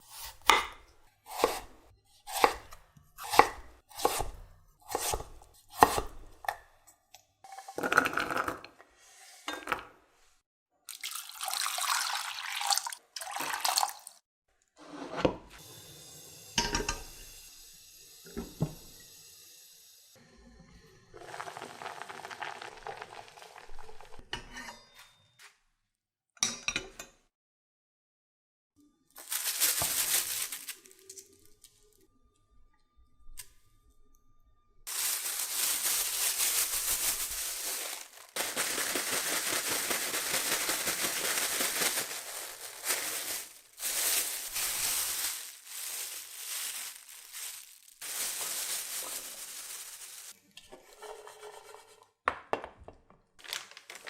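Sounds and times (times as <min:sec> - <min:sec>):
steady cooking hiss: 0:15.6 - 0:20.2, 0:21.0 - 0:23.6
utensils and dishes clinking: 0:16.6 - 0:17.2.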